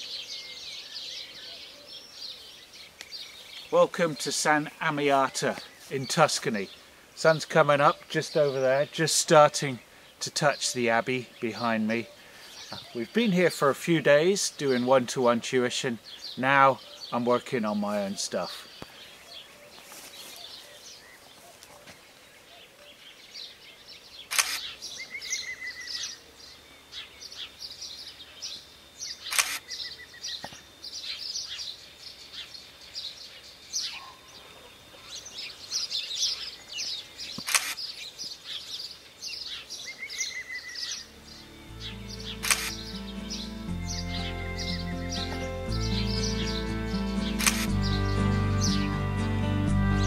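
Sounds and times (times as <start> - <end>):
birds chirping and singing: 0.0 - 50.0
camera shutter clicks: 24.3 - 24.7, 29.2 - 29.7, 37.4 - 37.8, 42.3 - 42.9, 47.4 - 47.8.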